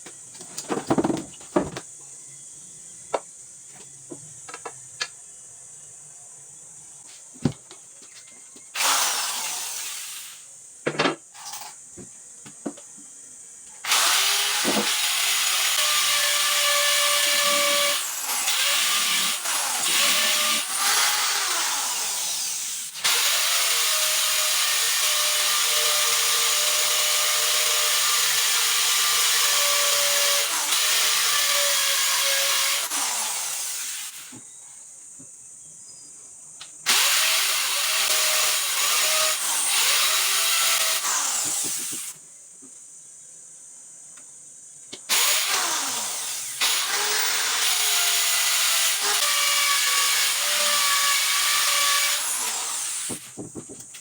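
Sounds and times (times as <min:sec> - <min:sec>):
electric power tool cutting wood: 0:08.8 - 0:10.4, 0:13.8 - 0:34.4, 0:36.9 - 0:42.2, 0:45.1 - 0:53.3.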